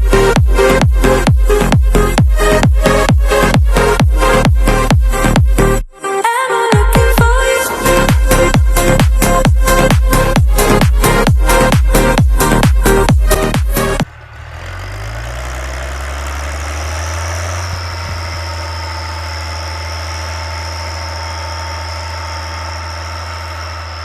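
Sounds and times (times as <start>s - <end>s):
dance music with heavy beat: 0.0s - 5.8s, 6.7s - 14.0s
tractor diesel engine running: 0.0s - 5.9s, 6.7s - 24.0s.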